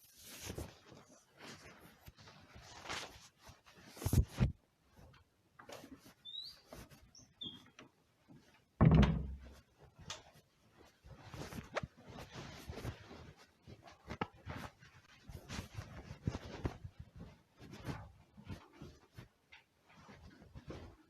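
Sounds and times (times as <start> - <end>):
brief high squeaks: 6.2 - 7.6
knocks and rustling: 8.4 - 10.4
loud thump: 8.8 - 9.4.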